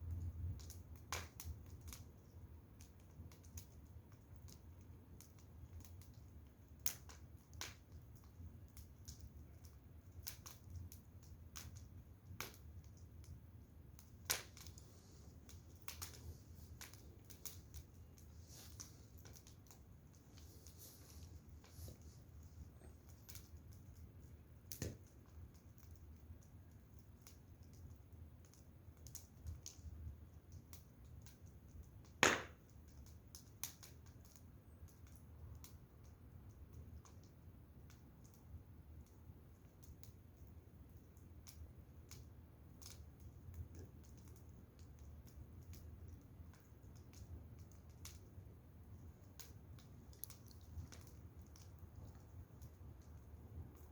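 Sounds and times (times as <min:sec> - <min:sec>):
firewood crackling: 0:00.0 - 0:53.9
loud pop from fire: 0:32.2 - 0:32.7.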